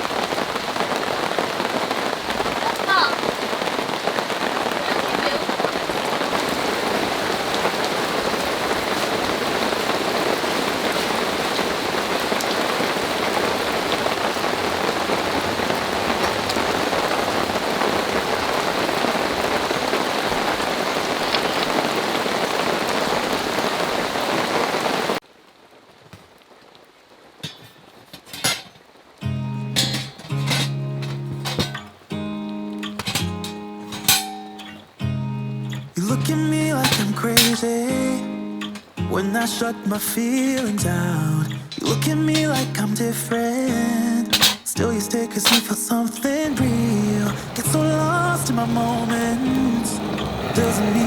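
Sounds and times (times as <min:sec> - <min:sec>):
heavy rain pouring: 0:00.0 - 0:51.0
guitar music: 0:29.2 - 0:51.0.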